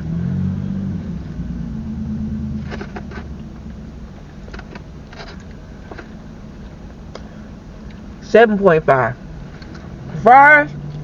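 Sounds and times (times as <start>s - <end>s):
vehicle engine hum: 0.0s - 11.0s
rustles: 1.0s - 8.1s.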